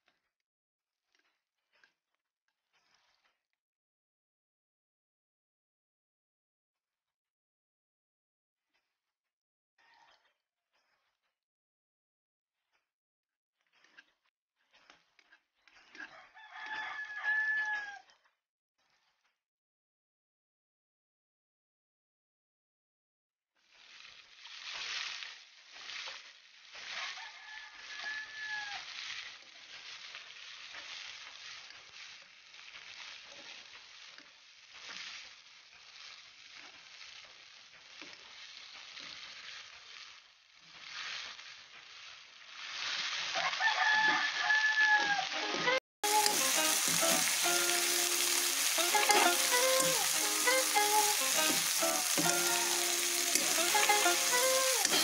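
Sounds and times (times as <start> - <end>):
chicken feet sizzling in wok: 15.8 - 18.0, 23.6 - 55.0
rooster crowing: 16.1 - 18.0, 27.1 - 28.8, 43.4 - 45.5
music playing: 45.4 - 55.0.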